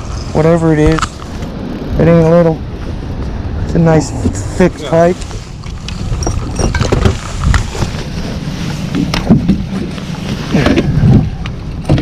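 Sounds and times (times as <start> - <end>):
wind rumble on microphone: 0.0 - 12.0
handling knocks and clicks: 5.6 - 8.0.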